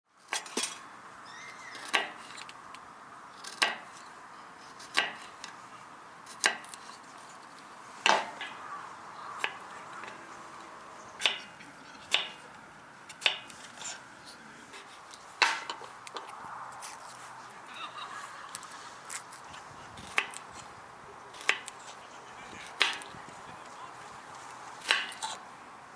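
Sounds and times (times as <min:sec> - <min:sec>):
chopping knocks: 0:08.0 - 0:08.5.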